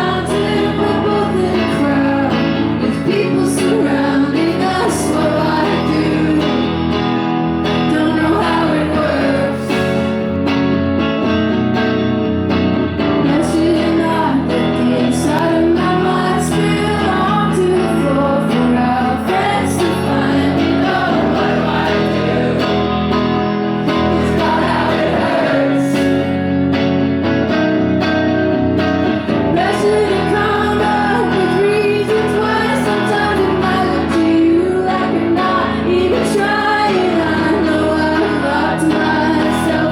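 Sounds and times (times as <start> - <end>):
woman singing: 0.0 - 10.2, 13.2 - 23.1, 23.8 - 26.3, 29.3 - 39.9
guitar accompaniment: 0.0 - 39.9.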